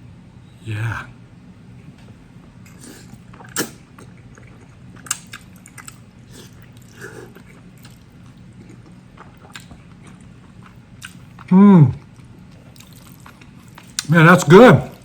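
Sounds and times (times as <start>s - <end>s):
person chewing noodles: 2.6s - 14.1s.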